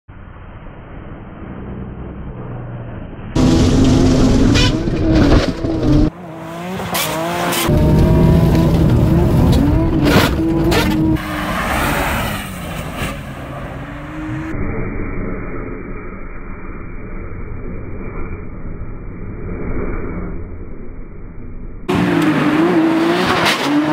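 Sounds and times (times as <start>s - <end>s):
car engines revving hard: 1.2s - 14.6s, 21.9s - 23.9s.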